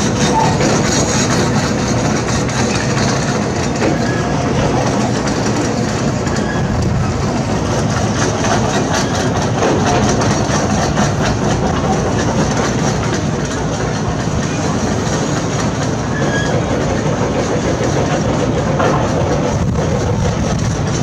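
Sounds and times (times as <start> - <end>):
metal clanking and knocking: 0.0 - 14.4
diesel excavator engine running: 0.0 - 21.0.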